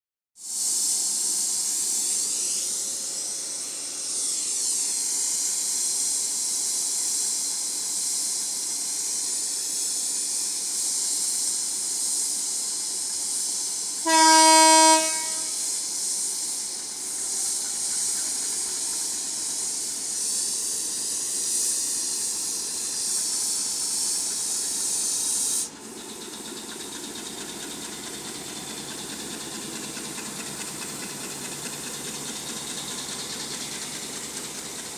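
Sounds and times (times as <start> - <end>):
locomotive loud steady hiss: 0.4 - 34.9
locomotive horn: 14.0 - 15.6.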